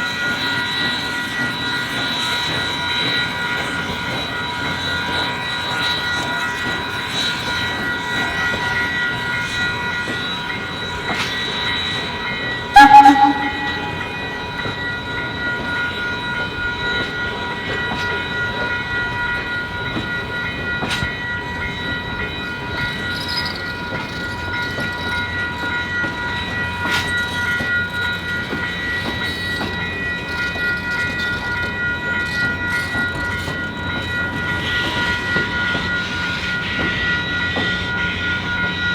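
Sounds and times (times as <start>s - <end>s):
train clattering on rails: 0.0s - 38.9s
high-pitched squeal: 12.8s - 14.2s
steam train whistle toot: 12.8s - 14.3s.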